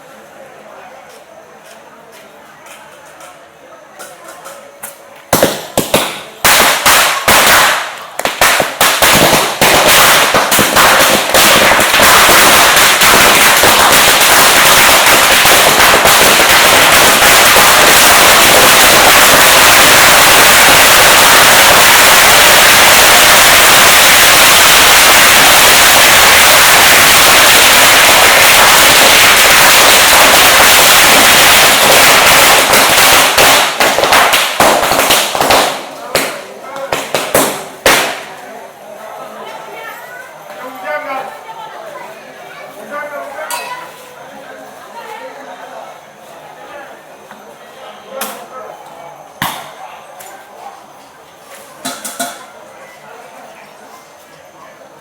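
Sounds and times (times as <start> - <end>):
firecrackers banging: 4.0 - 38.6, 49.4 - 49.8, 51.4 - 52.6.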